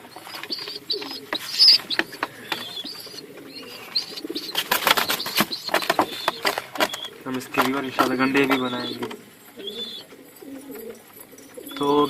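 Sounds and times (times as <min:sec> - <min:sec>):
high squeaky chirps: 0:00.0 - 0:10.1
pigeons cooing: 0:00.0 - 0:12.0
sharp rustling and clatter: 0:03.8 - 0:09.2.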